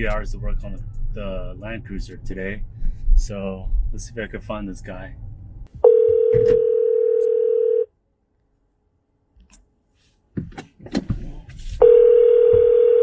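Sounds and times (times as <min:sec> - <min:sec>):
telephone ringback tone: 0:05.8 - 0:07.9, 0:11.8 - 0:13.0.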